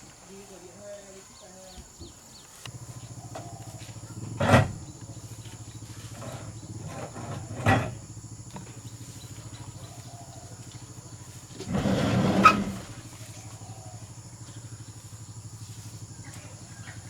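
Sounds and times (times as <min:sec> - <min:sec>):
engine idling: 0:02.5 - 0:17.0
loud engine bursts: 0:02.7 - 0:09.8.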